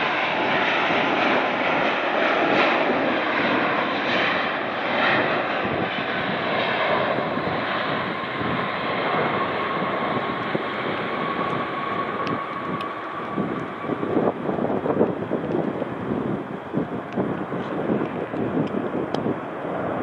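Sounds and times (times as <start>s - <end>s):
jet engines running: 0.0s - 20.0s.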